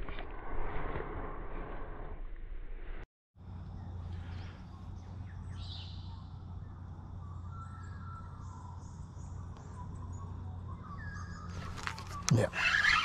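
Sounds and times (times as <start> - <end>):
insect calls: 3.4 - 13.0
steady low hum: 3.4 - 13.0
bird chirps: 3.6 - 13.0.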